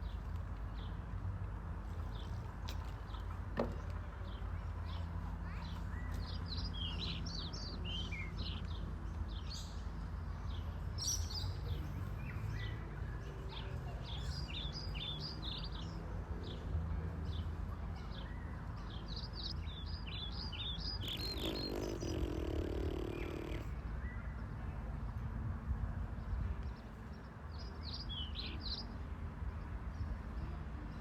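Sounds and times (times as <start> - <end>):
small birds chirping: 19.2 - 23.7.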